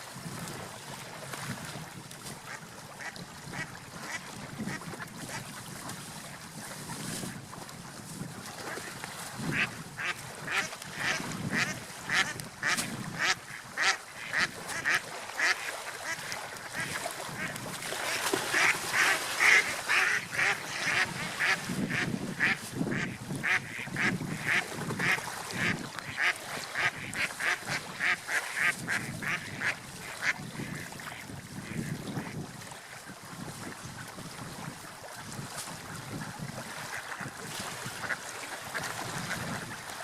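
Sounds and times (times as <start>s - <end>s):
ducks quacking: 9.5s - 31.1s.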